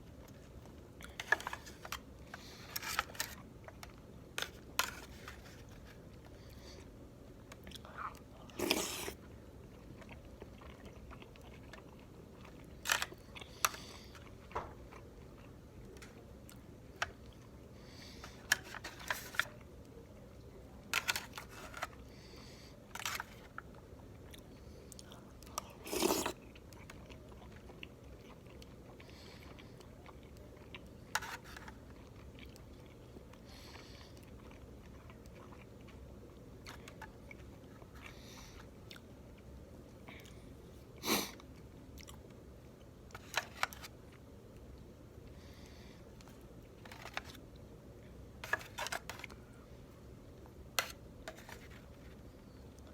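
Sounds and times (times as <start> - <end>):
person chewing food: 0.1 - 17.6, 23.0 - 40.5.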